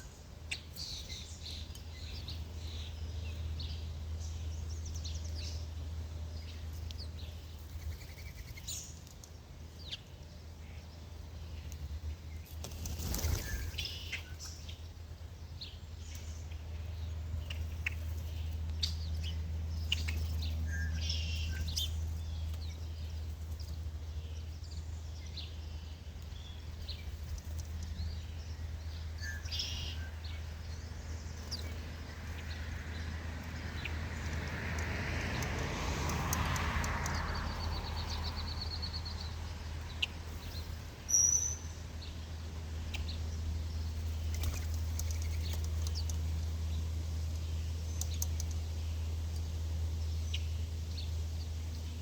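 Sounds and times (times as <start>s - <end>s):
small birds chirping: 0.0s - 52.0s
steady low hum: 0.0s - 52.0s.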